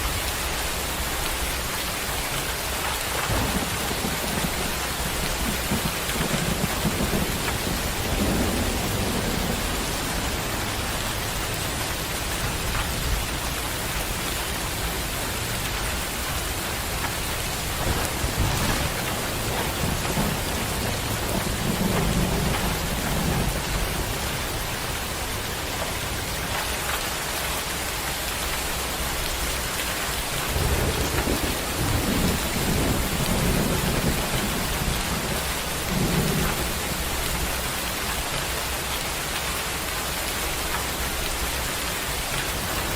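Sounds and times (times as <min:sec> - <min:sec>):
heavy rain falling: 0:00.0 - 0:42.9
low thunder rumbling: 0:02.6 - 0:26.6, 0:29.0 - 0:38.4.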